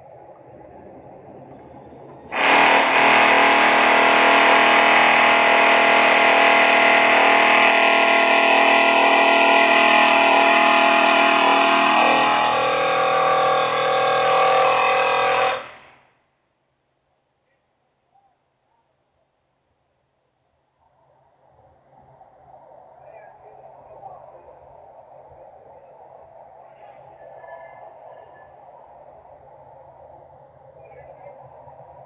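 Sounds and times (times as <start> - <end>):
industrial machinery drone: 0.2 - 16.0.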